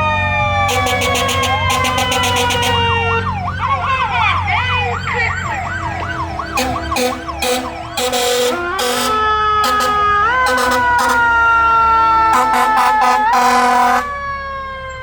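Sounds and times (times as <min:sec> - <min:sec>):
siren winding down: 0:00.0 - 0:15.0
electronic siren yelping: 0:00.5 - 0:15.0
short horn blasts: 0:00.7 - 0:03.1, 0:06.5 - 0:14.2.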